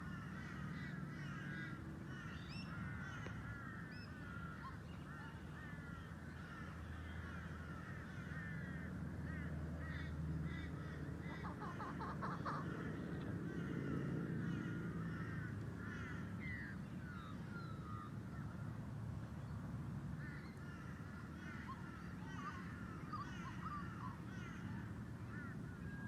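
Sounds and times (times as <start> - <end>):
low steady rumble: 0.0 - 26.0
birds chirping: 9.8 - 26.0.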